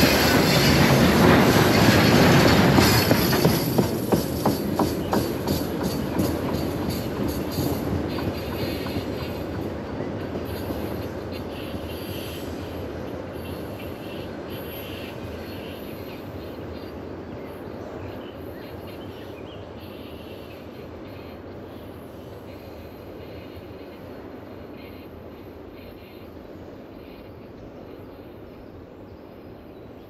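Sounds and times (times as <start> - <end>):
freight train rumble: 0.0 - 30.0.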